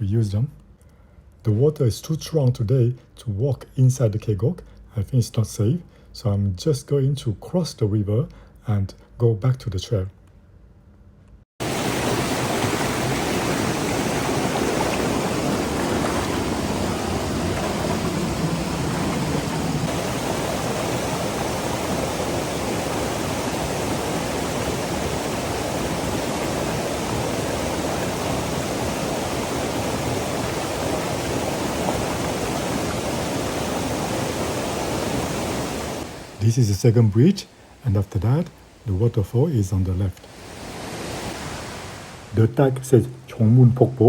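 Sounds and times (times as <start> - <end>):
fast stream rushing: 11.6 - 36.5, 40.2 - 42.4.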